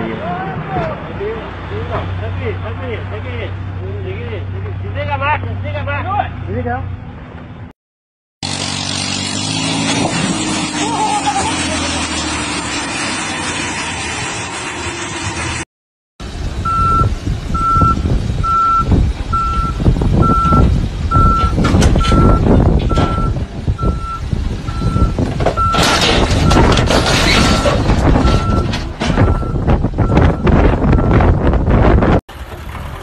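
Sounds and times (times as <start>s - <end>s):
heavy vehicle engine running: 8.4s - 15.6s, 16.2s - 33.0s
reverse alarm beeping: 16.6s - 25.8s, 27.5s - 31.2s.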